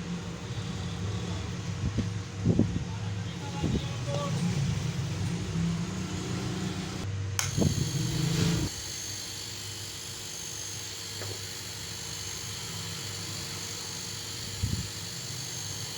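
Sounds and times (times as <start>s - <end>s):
refrigerator compressor hum: 0.0s - 15.9s
click: 7.4s - 7.6s.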